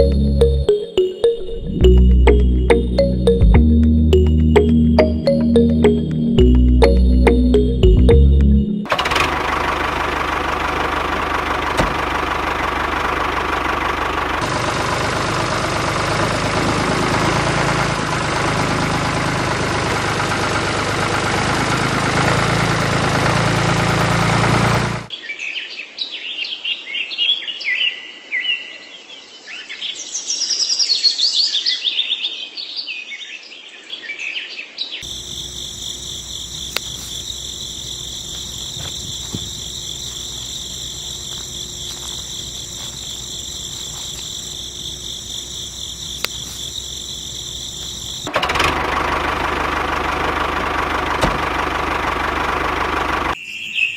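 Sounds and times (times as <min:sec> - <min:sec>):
small machine humming and rattling: 0:08.9 - 0:25.1, 0:35.0 - 0:53.4
birds chirping: 0:35.0 - 0:48.3
insects trilling: 0:35.0 - 0:48.3.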